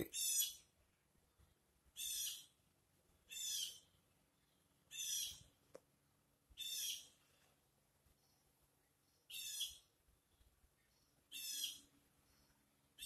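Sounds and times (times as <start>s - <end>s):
high-pitched bird-like call: 9.3s - 9.8s, 11.3s - 11.9s.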